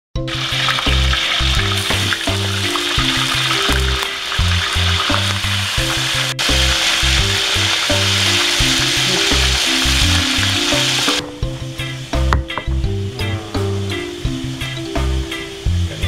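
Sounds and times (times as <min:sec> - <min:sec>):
background music: 0:00.2 - 0:16.0
tofu sizzling in hot oil: 0:00.3 - 0:12.2.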